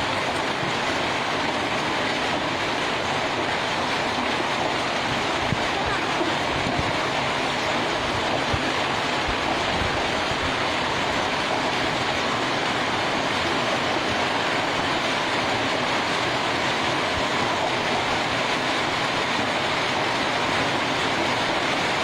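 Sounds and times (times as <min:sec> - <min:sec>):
heavy hail falling: 0:00.0 - 0:22.0.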